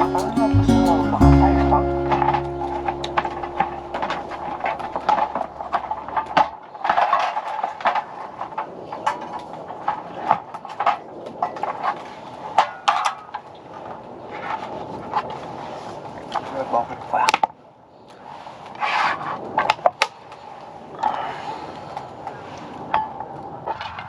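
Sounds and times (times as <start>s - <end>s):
low held tone: 0.0s - 6.5s.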